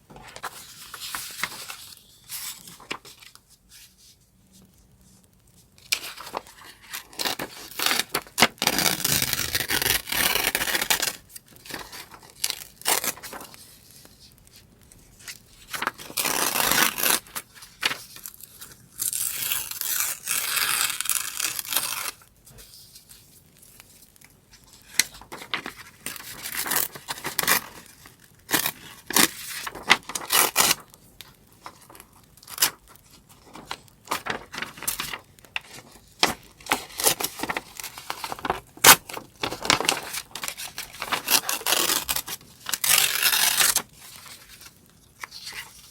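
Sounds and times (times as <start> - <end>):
paper rustling and crinkling: 0.1 - 45.9
paper tearing: 6.0 - 11.2, 15.7 - 18.0, 19.0 - 22.2, 28.5 - 30.8, 33.6 - 35.2, 35.8 - 44.6.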